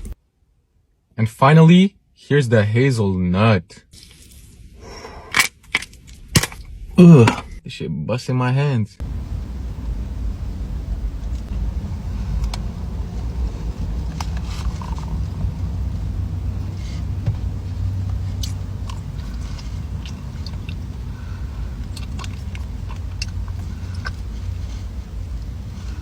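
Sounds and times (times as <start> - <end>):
low rumble: 9.0 - 26.0
crunching crisp pastry: 18.0 - 26.0.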